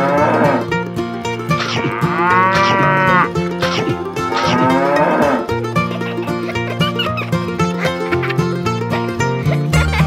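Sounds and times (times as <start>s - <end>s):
cows mooing: 0.0s - 0.7s, 1.5s - 5.6s
light background music: 0.0s - 10.0s.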